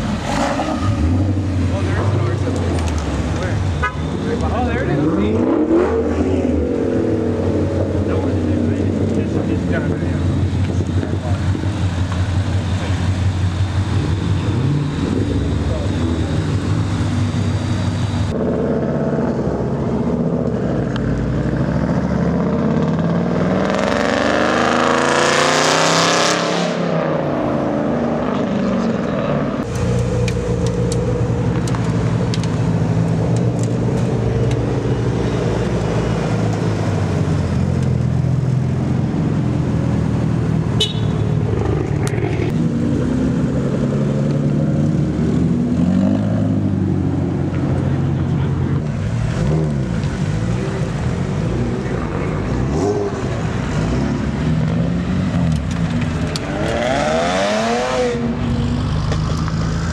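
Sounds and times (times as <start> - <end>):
car engines rumbling: 0.0 - 59.9
car accelerating hard: 4.3 - 11.8, 13.8 - 30.2, 41.4 - 59.9.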